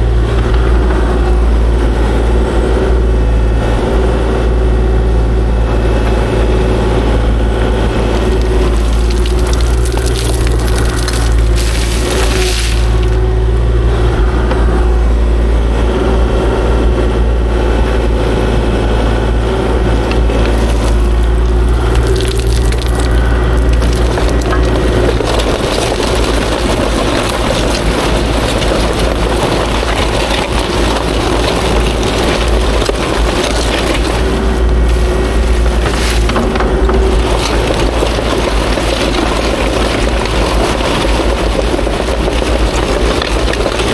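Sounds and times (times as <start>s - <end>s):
excavator diesel engine running: 0.0s - 43.9s
rock crunching: 5.9s - 13.8s, 19.7s - 43.9s.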